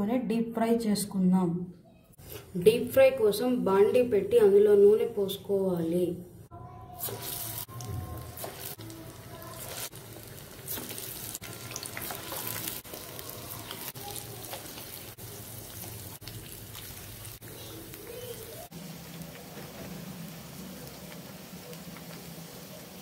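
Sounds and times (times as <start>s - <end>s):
oil sizzling while deep-frying: 7.0s - 23.0s.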